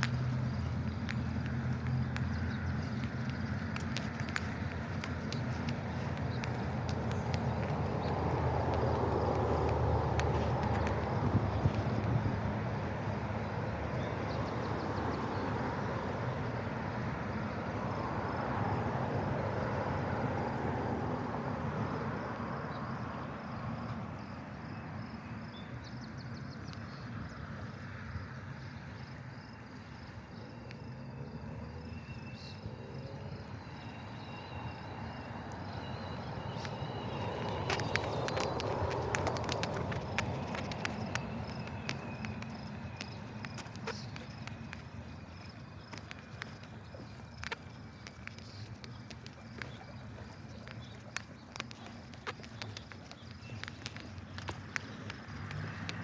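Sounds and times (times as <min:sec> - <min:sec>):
sharp clicks: 0:00.0 - 0:12.2, 0:36.6 - 0:56.0.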